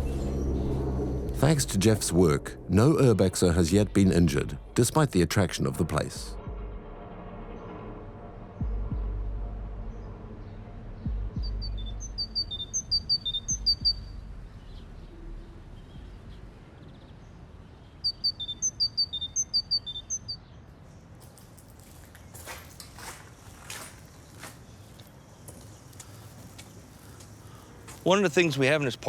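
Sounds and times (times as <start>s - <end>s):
songbird chirping: 0.0s - 6.3s, 8.6s - 29.0s
low hum: 0.0s - 17.6s.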